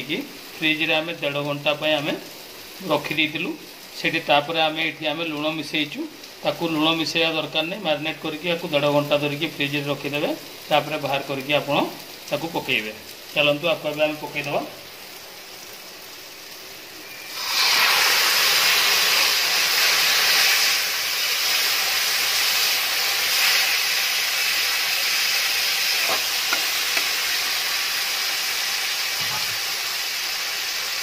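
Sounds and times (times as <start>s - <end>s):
chicken sizzling in oil: 0.0s - 31.0s
metal spatula scraping pan: 29.2s - 29.6s.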